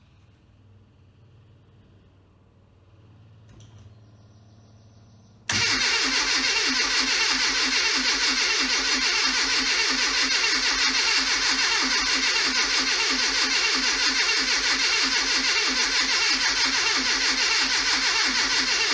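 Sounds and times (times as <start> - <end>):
engine cranking on starter motor: 5.5 - 18.9.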